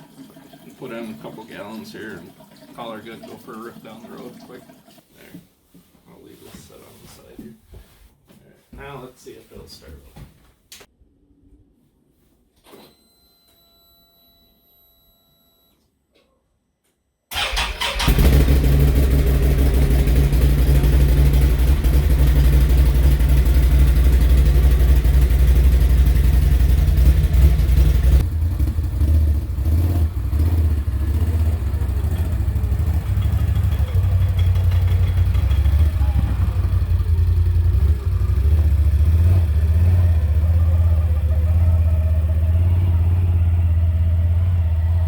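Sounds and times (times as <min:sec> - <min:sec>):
atv engine starting and running: 0:17.3 - 0:45.0.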